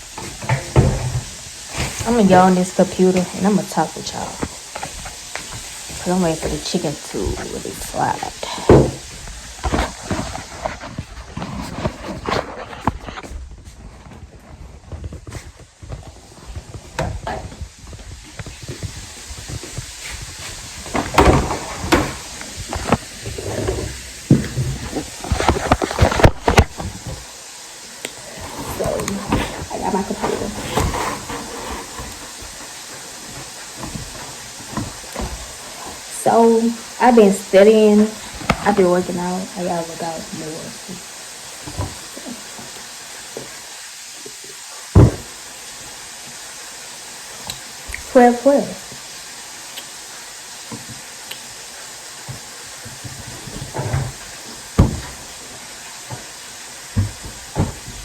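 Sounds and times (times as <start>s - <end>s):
chicken frying in oil: 0.0s - 58.0s
objects knocking and clattering: 0.1s - 2.4s, 8.6s - 27.3s.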